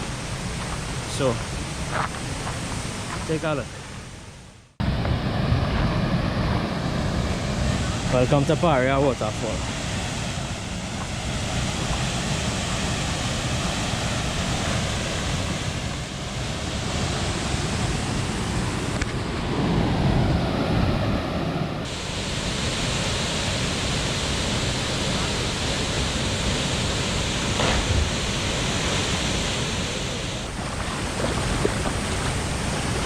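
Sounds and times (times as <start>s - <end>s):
waterfall roaring: 19.6s - 33.0s.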